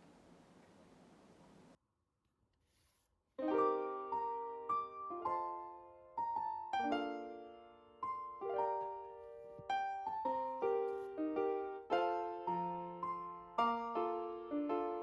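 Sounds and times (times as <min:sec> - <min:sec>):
gentle piano melody: 0:03.4 - 0:15.0.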